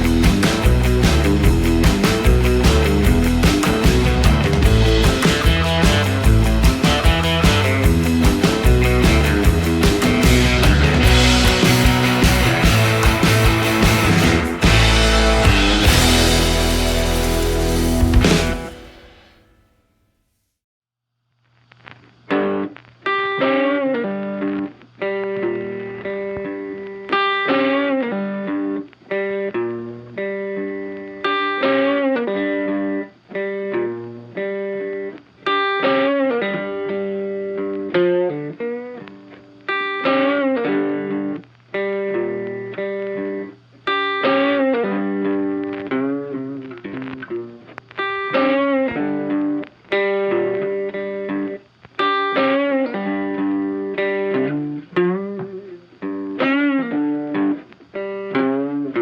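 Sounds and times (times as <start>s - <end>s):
funky electric guitar music: 0.0s - 19.4s, 21.8s - 59.0s.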